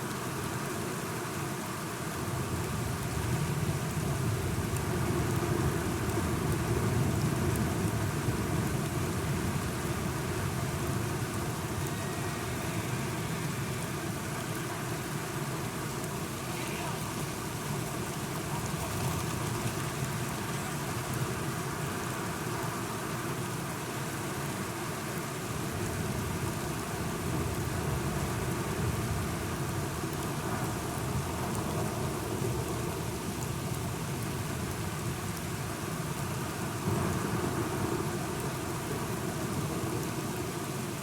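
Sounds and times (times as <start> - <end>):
heavy rain: 0.0 - 41.0.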